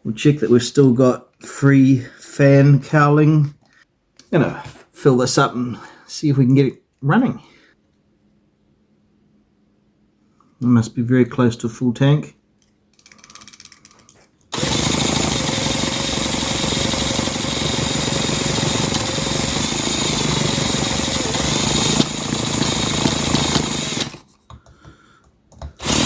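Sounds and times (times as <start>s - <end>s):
model engine clatter: 14.6s - 24.2s.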